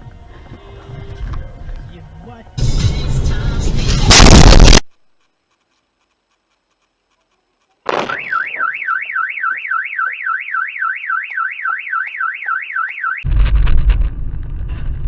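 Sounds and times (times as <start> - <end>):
car alarm siren warbling: 8.1 - 13.2.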